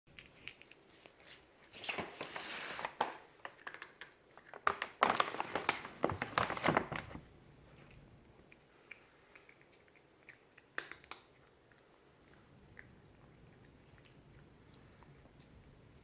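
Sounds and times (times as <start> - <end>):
crinkling and rustling: 0.1 - 8.0.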